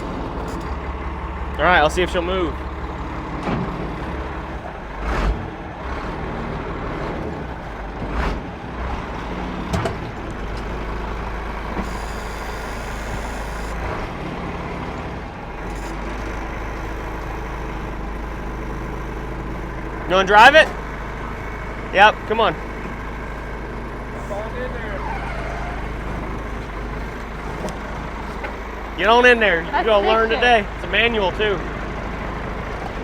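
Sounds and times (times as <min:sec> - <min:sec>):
clunks: 0:00.0 - 0:05.5, 0:07.0 - 0:14.1, 0:19.8 - 0:30.9
truck engine running: 0:00.0 - 0:33.0.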